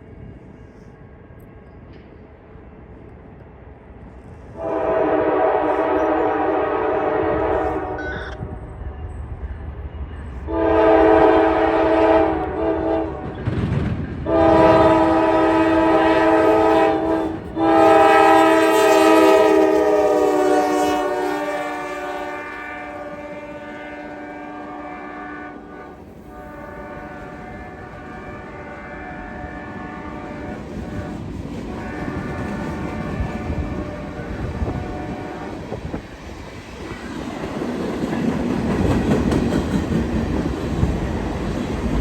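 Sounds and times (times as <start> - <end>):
train rumbling past: 0.0 - 42.0
locomotive air horn blasts: 4.6 - 8.5, 10.5 - 13.3, 14.3 - 35.6.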